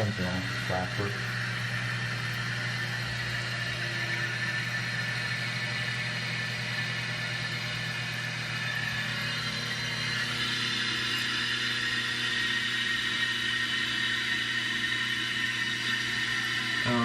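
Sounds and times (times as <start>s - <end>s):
low hum: 0.0s - 11.4s
toilet tank refilling with hiss: 0.0s - 17.0s.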